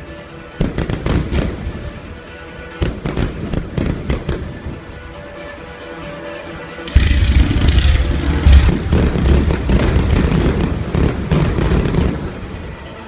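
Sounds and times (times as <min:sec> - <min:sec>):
fireworks bangs and crackles: 0:00.5 - 0:05.0, 0:06.9 - 0:13.0
heavy low boom: 0:06.9 - 0:11.2.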